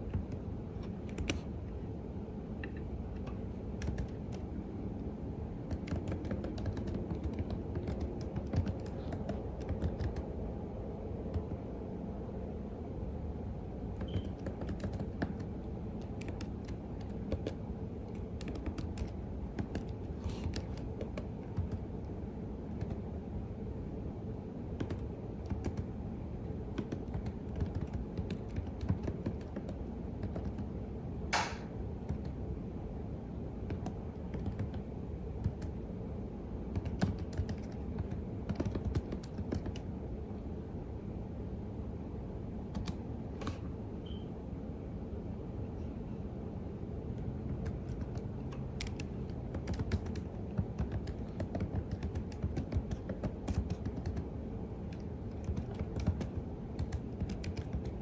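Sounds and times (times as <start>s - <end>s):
typing on a keyboard: 0.0s - 1.5s, 3.2s - 4.5s, 5.6s - 10.4s, 11.3s - 11.6s, 14.0s - 21.9s, 22.7s - 23.0s, 24.8s - 25.9s, 26.7s - 30.7s, 32.0s - 32.4s, 33.6s - 35.8s, 36.7s - 39.9s, 42.7s - 43.0s, 47.2s - 58.0s
steady low hum: 0.0s - 58.0s
sharp click: 31.3s - 31.8s.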